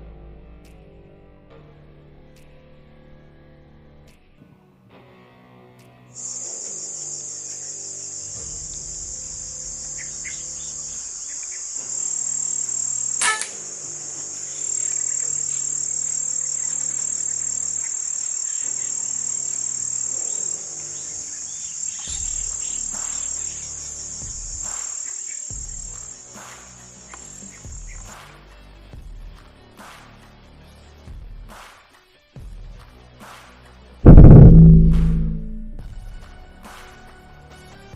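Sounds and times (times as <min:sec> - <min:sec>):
high-pitched insect drone: 0:06.2 - 0:26.4
sharp crack: 0:13.2 - 0:13.6, 0:34.1 - 0:36.0.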